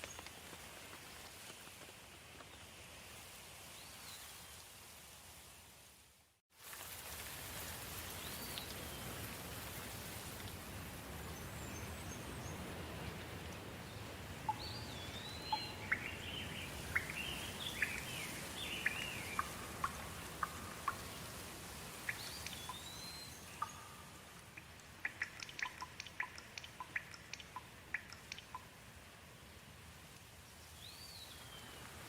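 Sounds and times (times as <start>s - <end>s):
soft rain hiss: 0.0s - 32.0s
water drops ticking: 14.4s - 28.7s.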